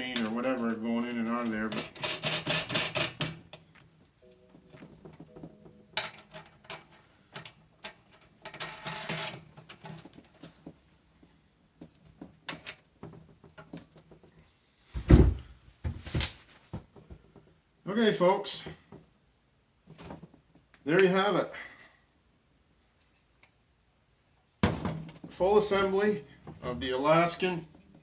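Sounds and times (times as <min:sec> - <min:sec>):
heavy thump: 0:15.0 - 0:16.2.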